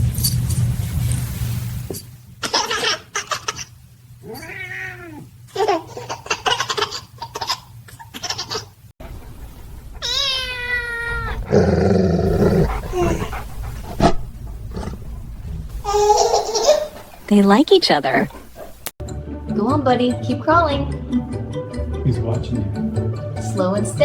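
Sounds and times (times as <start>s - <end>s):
cat meowing and yowling: 4.2s - 5.2s, 10.0s - 11.4s
loud rumbling noise: 9.1s - 18.2s
baby giggling: 15.8s - 17.0s.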